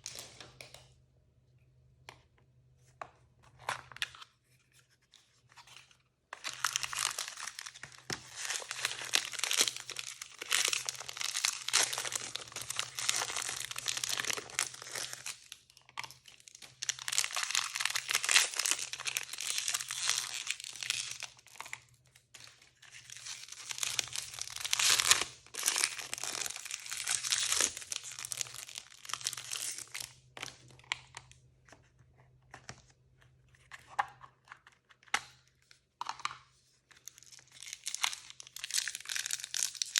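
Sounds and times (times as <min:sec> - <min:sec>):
packaging crinkling and tearing: 0:06.4 - 0:21.8, 0:22.8 - 0:31.3, 0:37.0 - 0:39.9.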